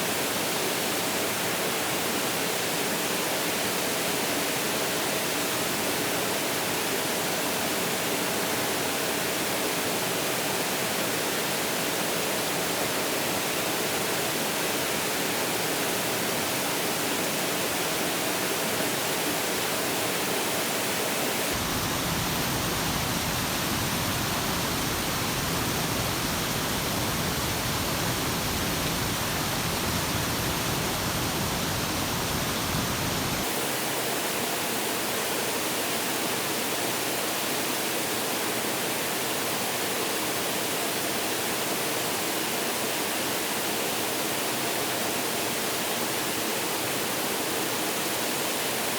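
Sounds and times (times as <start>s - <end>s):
rushing water: 19.4s - 33.6s.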